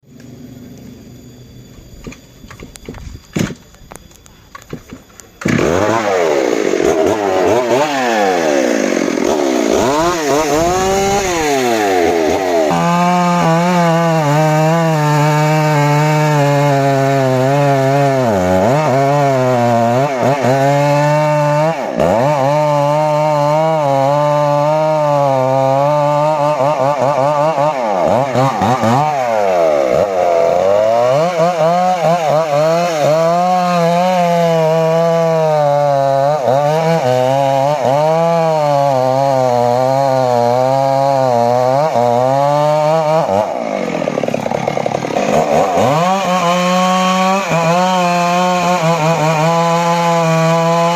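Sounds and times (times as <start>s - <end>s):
chainsaw revving and cutting wood: 4.6s - 50.9s.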